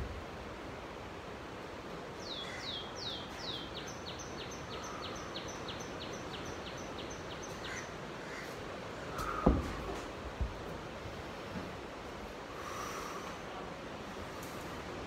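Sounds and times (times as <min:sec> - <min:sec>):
steady background hiss: 0:00.0 - 0:15.0
bird calling: 0:02.2 - 0:09.8.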